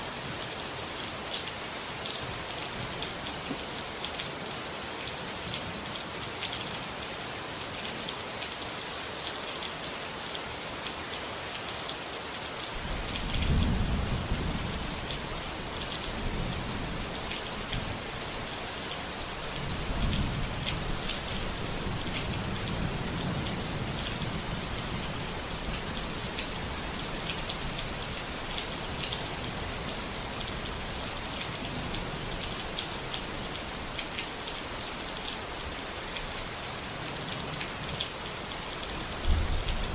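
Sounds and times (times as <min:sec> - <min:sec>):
steady rain pattering: 0:00.0 - 0:39.9
rolling thunder: 0:12.8 - 0:15.1, 0:39.2 - 0:39.9.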